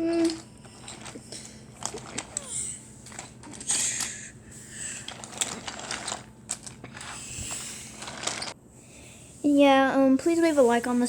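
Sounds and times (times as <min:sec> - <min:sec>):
wooden toy train clattering on track: 0:00.2 - 0:04.2, 0:05.1 - 0:07.2.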